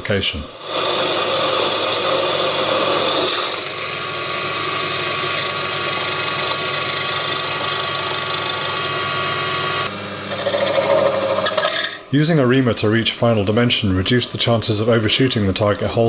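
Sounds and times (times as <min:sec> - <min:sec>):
mini lathe motor whine: 0:00.6 - 0:12.0.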